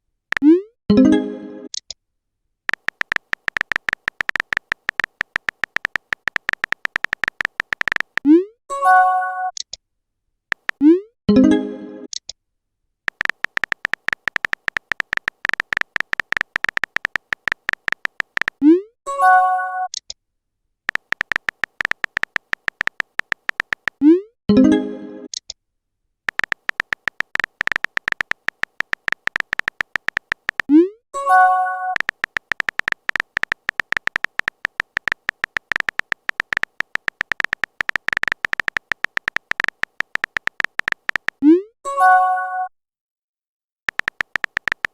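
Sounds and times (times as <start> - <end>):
keyboard typing clicks: 0.3 - 0.6, 2.7 - 8.4, 10.5 - 11.0, 13.1 - 18.8, 20.9 - 24.2, 26.3 - 41.6, 43.9 - 44.9
electronic key ticks: 2.7 - 8.3, 10.5 - 11.0, 13.1 - 18.6, 20.9 - 24.1, 26.3 - 41.4, 43.9 - 44.9.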